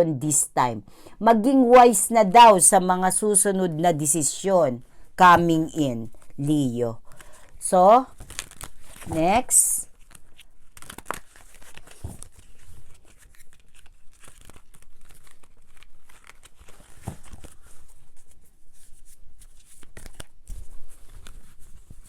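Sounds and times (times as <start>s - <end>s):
cards being shuffled: 8.1s - 22.0s.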